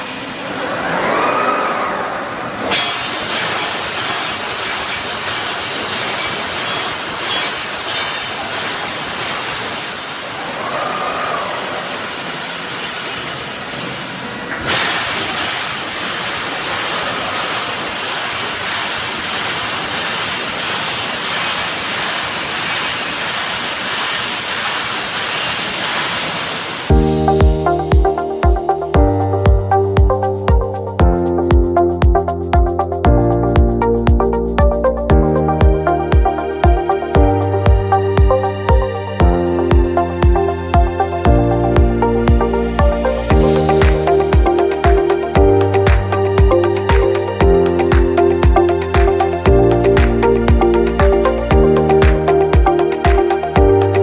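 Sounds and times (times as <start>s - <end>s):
welding machine hissing: 0.0s - 27.3s
music: 26.9s - 54.0s.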